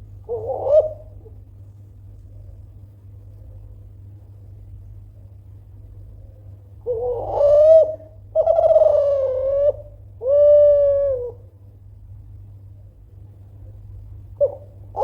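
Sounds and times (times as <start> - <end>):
dove cooing: 0.0 - 1.4, 6.8 - 11.5, 14.4 - 15.0.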